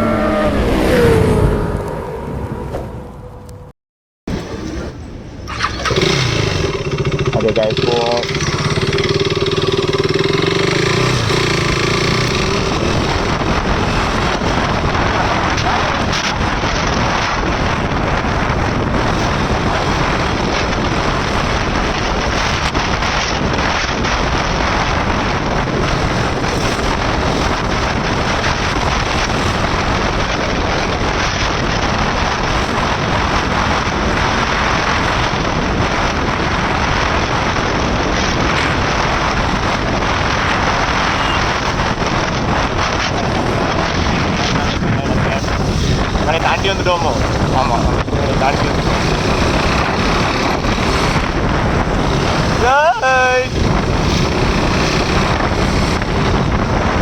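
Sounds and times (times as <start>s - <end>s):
wind rushing over microphone: 0.0s - 3.7s, 4.3s - 57.0s
motorcycle engine running: 4.5s - 57.0s.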